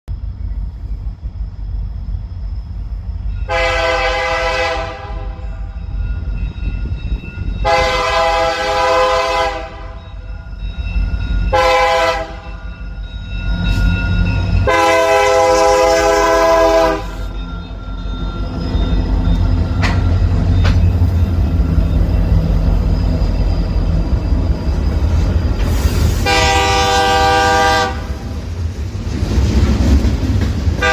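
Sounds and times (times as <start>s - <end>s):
locomotive engine rumble: 0.1s - 30.9s
train air horn blasts: 3.5s - 5.7s, 7.6s - 10.0s, 11.5s - 12.5s, 14.6s - 17.3s, 26.1s - 28.2s.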